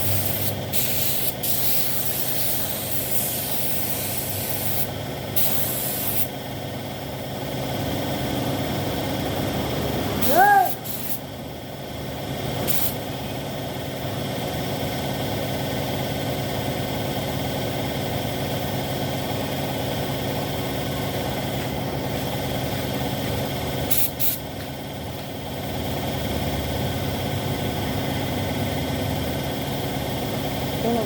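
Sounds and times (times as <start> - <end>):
air hissing: 0.0 - 6.3, 10.2 - 11.2, 12.7 - 13.0, 23.9 - 24.4
spray machine humming: 0.0 - 6.3, 9.9 - 11.2
short sharp hisses: 10.2 - 11.2.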